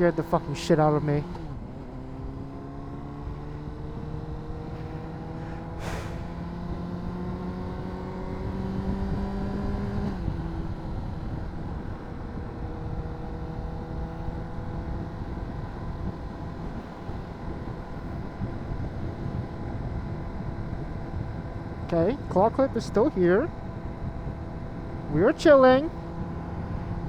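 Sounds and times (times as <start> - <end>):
motorcycle engine revving: 0.0 - 27.0
brief rush of noise: 5.8 - 6.4.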